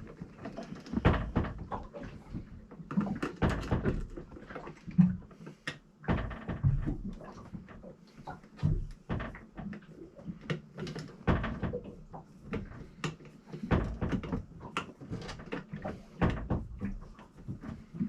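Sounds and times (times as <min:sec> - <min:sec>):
cabinet door thumps: 0:01.0 - 0:01.7, 0:06.1 - 0:07.0.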